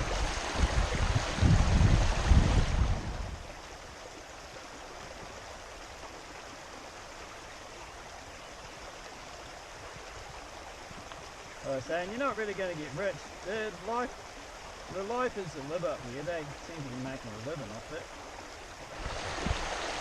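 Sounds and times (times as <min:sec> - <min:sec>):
gusty low rumbling: 0:00.0 - 0:03.5
creek water rushing: 0:00.0 - 0:20.0.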